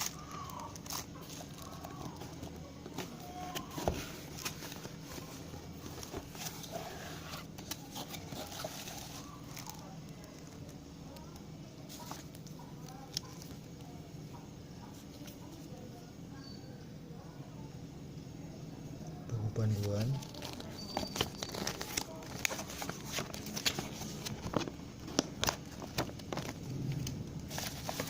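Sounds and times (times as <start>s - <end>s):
packaging rustling: 0.0s - 10.8s, 19.6s - 28.0s
steady low hum: 21.8s - 28.0s.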